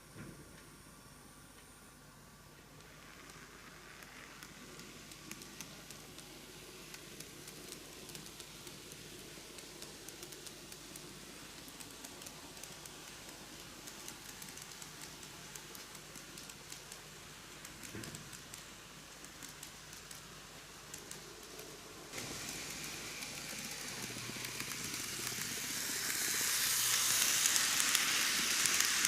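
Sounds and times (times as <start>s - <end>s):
model train motor whirr: 2.8s - 29.0s.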